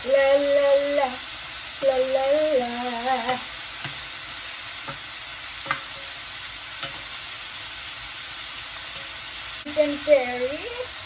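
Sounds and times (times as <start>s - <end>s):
food sizzling in oil: 0.0s - 11.0s
utensil clicking against pan: 6.8s - 7.1s.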